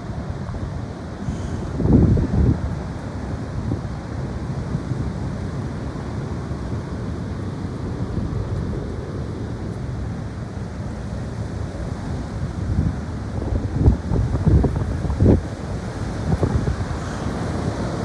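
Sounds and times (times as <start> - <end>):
high wind on microphone: 0.0 - 18.0.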